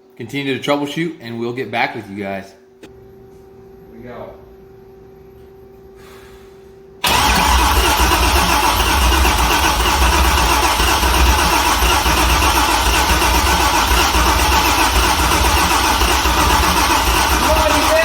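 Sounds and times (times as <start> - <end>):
car engine cranking on starter: 7.0 - 18.0.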